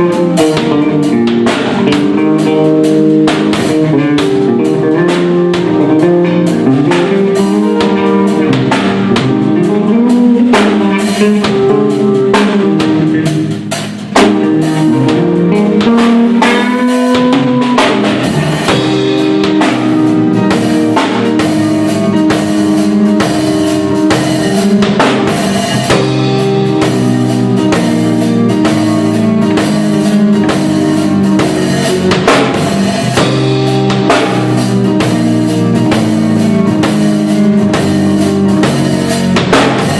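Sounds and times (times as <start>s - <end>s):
band playing a song: 0.0s - 39.9s.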